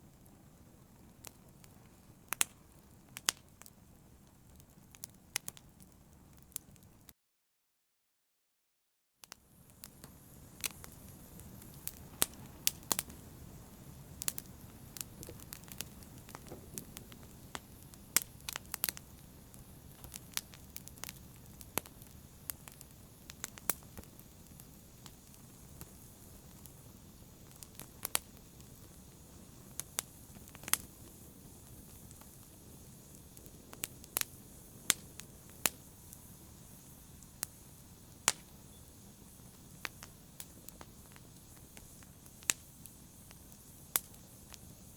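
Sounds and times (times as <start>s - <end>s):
fire crackling: 0.0s - 7.1s, 9.3s - 44.9s
low rush of flame: 9.5s - 44.9s.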